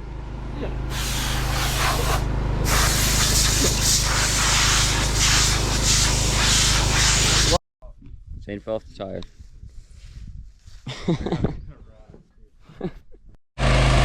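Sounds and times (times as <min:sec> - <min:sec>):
compressed air hissing: 0:00.9 - 0:07.6
engine humming: 0:13.6 - 0:14.0.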